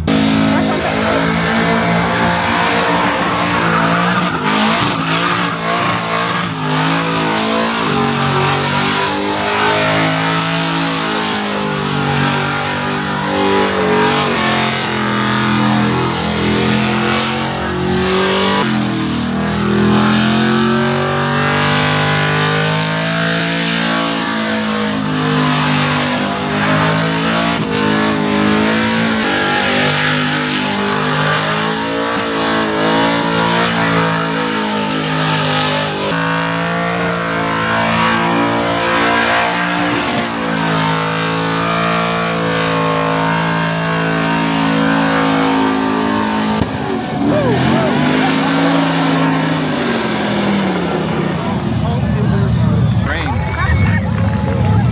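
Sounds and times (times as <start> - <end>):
car engine revving high: 0.0 - 54.9
tyres spinning on pavement: 0.0 - 54.9.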